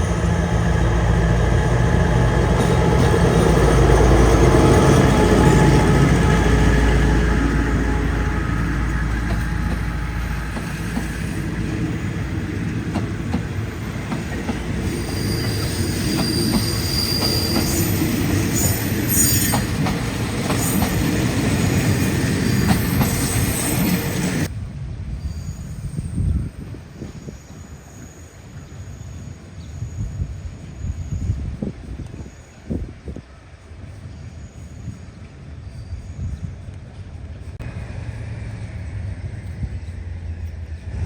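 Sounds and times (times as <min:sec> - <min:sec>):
high wheel squeal: 0:00.0 - 0:24.5
train wheels clicking over rail joints: 0:00.0 - 0:24.5
train engine hum: 0:00.0 - 0:41.0.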